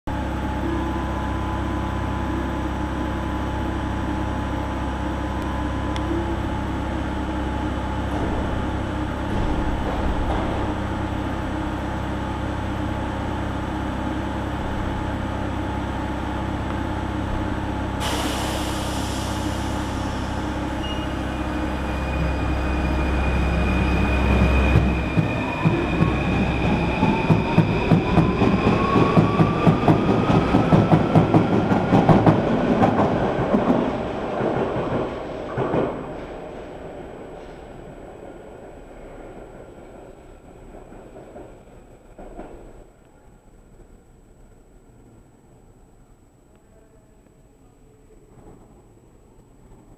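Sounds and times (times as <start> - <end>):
train low hum: 0.1 - 49.9
train wheels clattering over rails: 9.3 - 10.8, 24.2 - 36.5
air hissing: 18.0 - 21.3.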